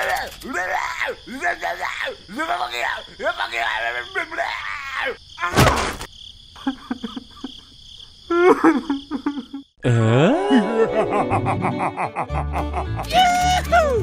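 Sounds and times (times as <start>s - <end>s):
chirps and clicks: 0.0s - 0.6s
high cricket-like chirring: 0.0s - 9.8s.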